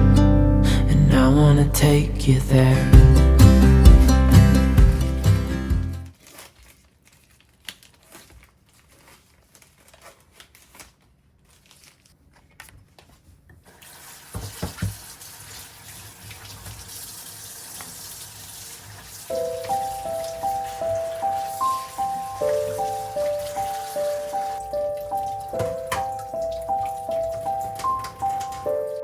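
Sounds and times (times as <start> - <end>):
tap running into a sink: 14.3 - 15.6.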